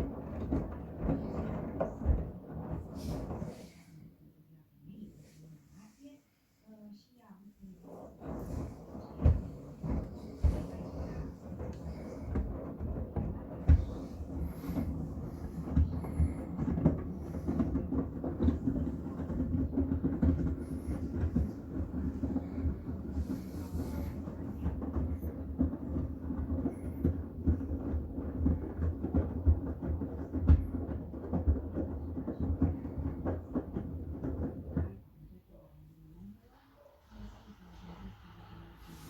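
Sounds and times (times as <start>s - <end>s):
washing machine drum hum: 0.0s - 3.6s, 7.8s - 35.8s
light knocks of tumbling load: 8.0s - 35.3s.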